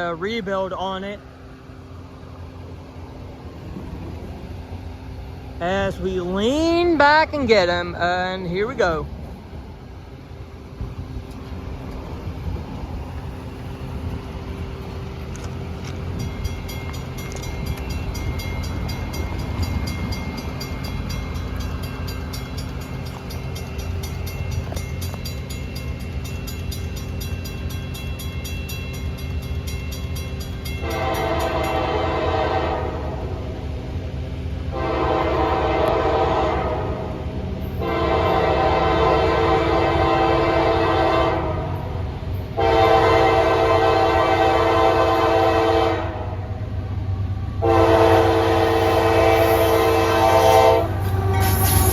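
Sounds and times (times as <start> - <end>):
locomotive engine rumble: 0.0 - 51.9
train air horn blasts: 30.8 - 33.2, 34.7 - 37.1, 37.8 - 41.8, 42.6 - 46.5, 47.6 - 51.9.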